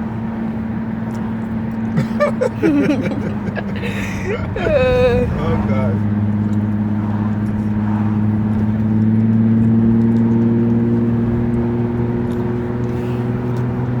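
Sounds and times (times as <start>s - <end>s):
car engine idling: 2.0s - 8.9s.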